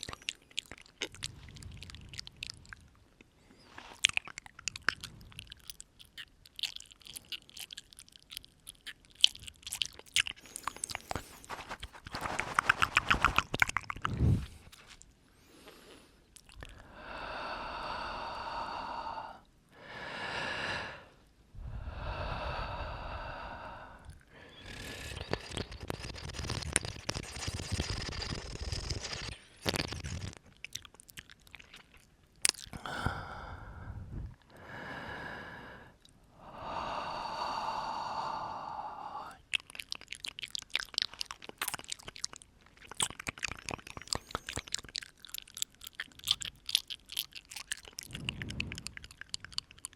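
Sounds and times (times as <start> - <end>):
wet mouth clicks and lip smacks: 0.0 - 15.2, 16.3 - 16.8, 24.0 - 33.1, 39.3 - 49.9
slow breaths into microphone: 33.0 - 36.0, 48.0 - 49.4.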